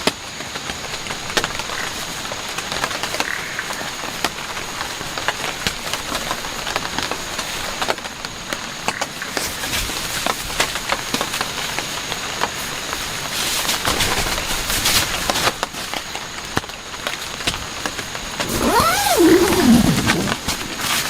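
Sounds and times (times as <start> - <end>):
heavy rain falling: 9.9 - 21.0.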